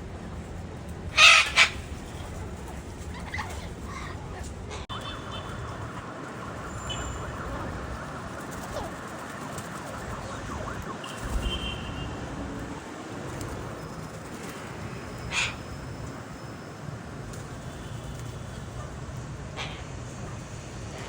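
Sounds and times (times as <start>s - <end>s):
outdoor rumble and hiss: 0.0s - 21.0s
parrots calling: 1.1s - 2.4s, 15.0s - 15.9s.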